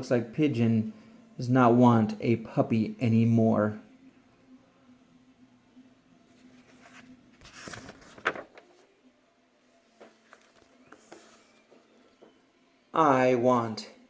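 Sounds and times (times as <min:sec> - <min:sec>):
page turning paper rustle: 0:06.3 - 0:08.9, 0:09.9 - 0:12.3.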